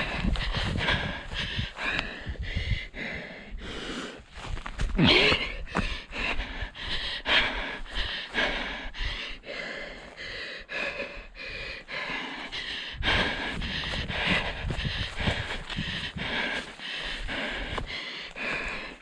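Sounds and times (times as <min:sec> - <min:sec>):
wind rumbling on microphone: 0:00.0 - 0:10.0, 0:12.4 - 0:18.9
runner breathing hard: 0:00.0 - 0:19.0
running footfalls: 0:04.3 - 0:08.5, 0:13.0 - 0:19.0.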